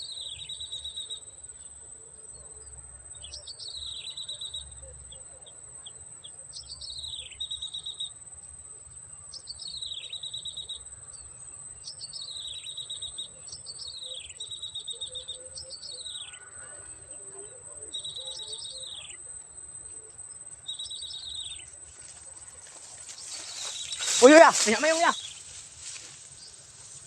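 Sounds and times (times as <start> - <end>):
bird calling with trill: 23.1 - 26.0.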